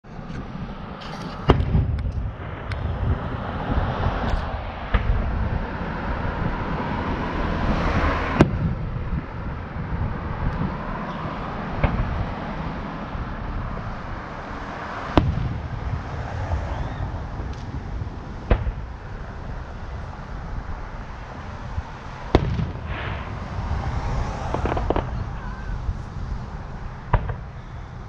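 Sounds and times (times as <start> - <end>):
steady low rumble: 0.0 - 28.0
distant fireworks bangs: 1.4 - 3.4, 7.2 - 8.8, 10.1 - 27.8.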